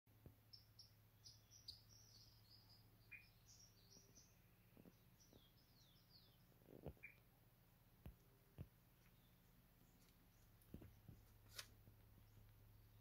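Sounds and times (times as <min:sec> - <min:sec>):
low steady hum: 0:00.2 - 0:13.0
high-pitched bird chirps: 0:00.5 - 0:04.3.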